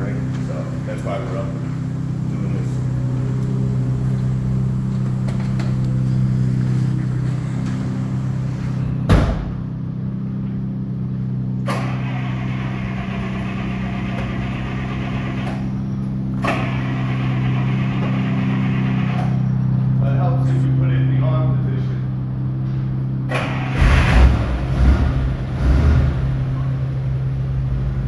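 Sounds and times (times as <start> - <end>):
engine idling: 0.0 - 28.0
loud thump: 9.0 - 9.8
sharp knocks: 9.1 - 9.7.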